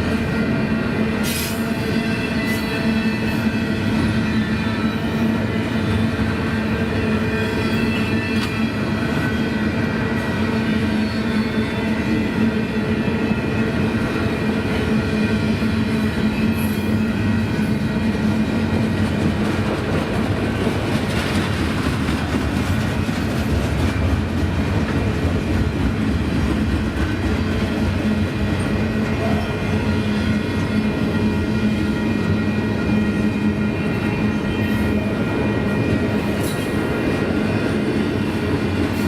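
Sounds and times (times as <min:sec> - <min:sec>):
train wheels clicking over rails: 0:18.1 - 0:29.2.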